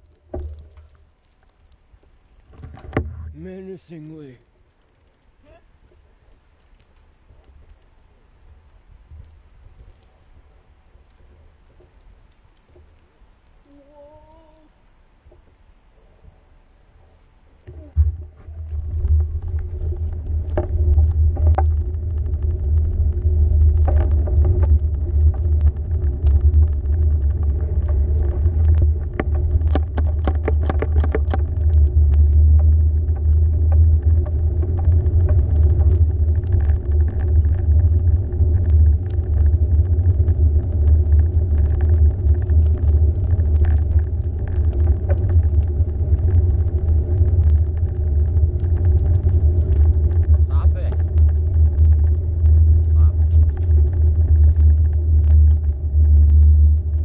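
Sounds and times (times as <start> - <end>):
low rumble of ride noise: 17.0 - 57.0
clicks and rattles: 17.6 - 37.9.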